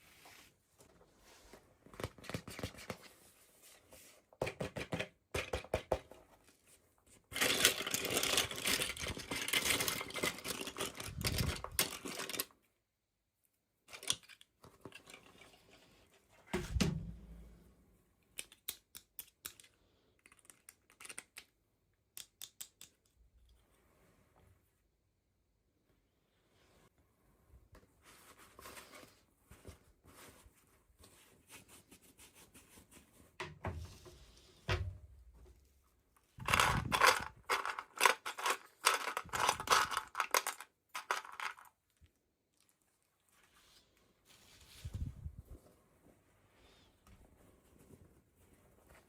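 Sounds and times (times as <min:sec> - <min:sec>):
small plastic clicks and taps: 0:22.1 - 0:23.2.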